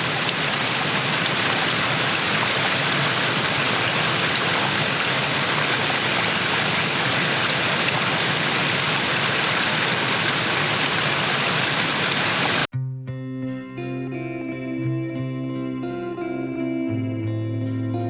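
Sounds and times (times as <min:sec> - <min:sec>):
water rushing: 0:00.0 - 0:12.7
guitar music: 0:12.8 - 0:18.0.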